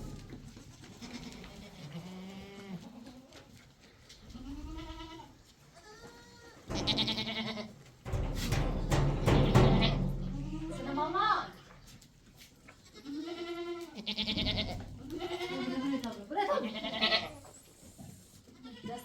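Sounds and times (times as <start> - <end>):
sheep bleating: 12.8 - 17.4.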